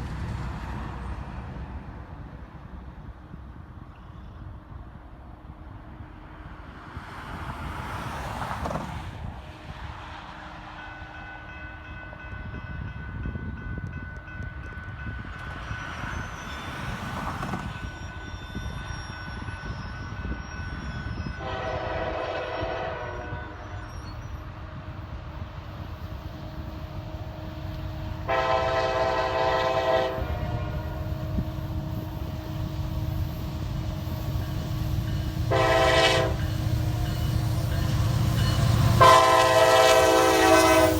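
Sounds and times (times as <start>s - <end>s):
train rumbling: 0.0s - 40.9s
locomotive air horn blasts: 21.4s - 23.8s, 27.0s - 32.6s, 35.4s - 38.0s, 38.6s - 40.9s.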